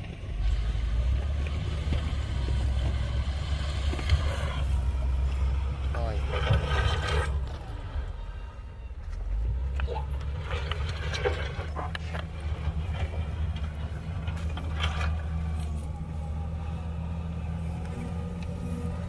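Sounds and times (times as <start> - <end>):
heavy diesel engine running: 0.0 - 19.0
metal clanks and rattles: 5.7 - 7.9, 9.6 - 16.0.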